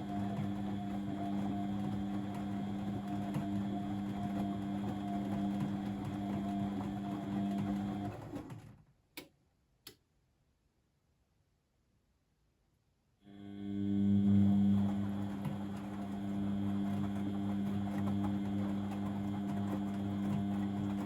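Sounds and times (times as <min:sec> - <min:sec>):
washing machine humming: 0:00.0 - 0:08.7, 0:13.3 - 0:21.0.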